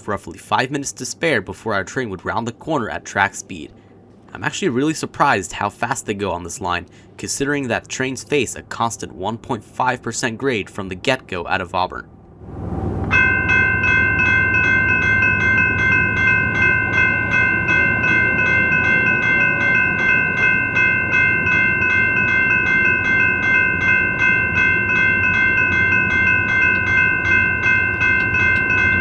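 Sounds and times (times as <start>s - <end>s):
low rumble: 12.0s - 29.0s
railroad crossing bell ringing: 13.0s - 29.0s.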